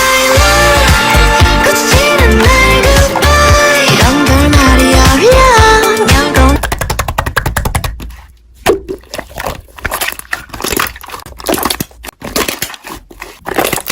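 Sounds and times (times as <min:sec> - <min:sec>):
slime crackling and popping: 0:08.7 - 0:13.9.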